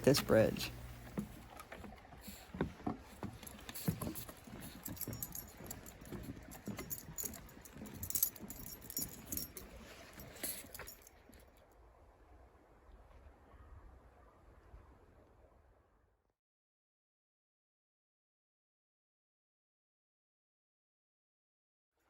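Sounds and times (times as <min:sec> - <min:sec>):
footsteps on wooden bridge: 0:00.0 - 0:11.1
small metal items jingling: 0:03.2 - 0:11.2.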